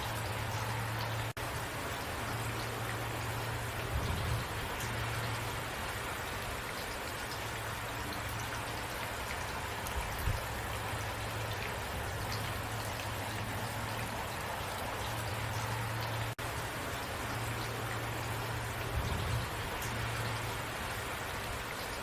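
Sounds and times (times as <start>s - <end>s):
low steady rumble: 0.0s - 6.2s
rain hissing: 0.0s - 22.0s
raindrops ticking: 0.0s - 22.0s.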